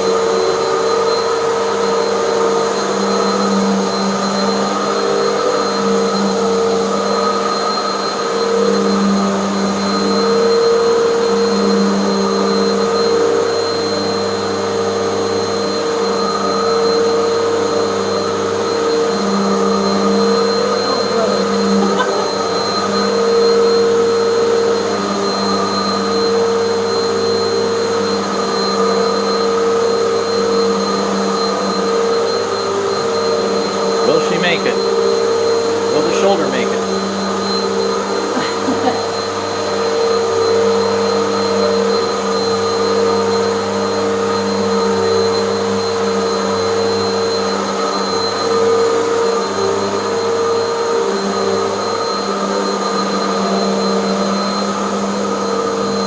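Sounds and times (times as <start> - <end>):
vacuum cleaner on carpet: 0.0 - 56.0.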